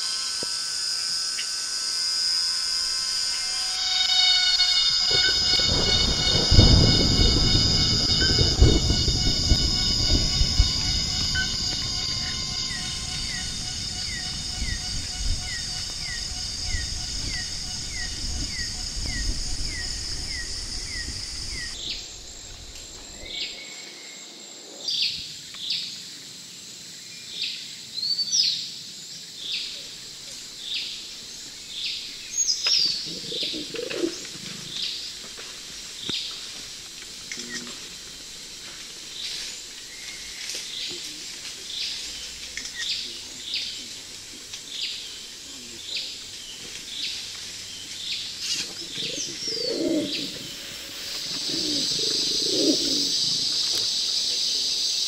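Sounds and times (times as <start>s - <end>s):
lower bird calls: 0.0s - 24.2s, 29.5s - 35.3s, 39.1s - 55.0s
steady high hum: 0.0s - 24.7s
bird chirping: 3.2s - 24.2s, 44.7s - 53.9s.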